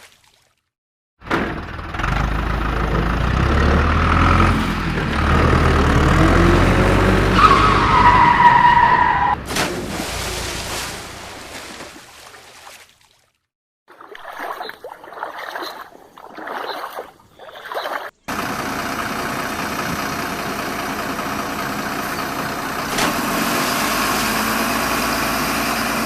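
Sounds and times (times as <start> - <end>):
vehicle engine rumbling: 1.2 - 11.6, 18.0 - 26.0
high tyre squeal: 7.2 - 9.4.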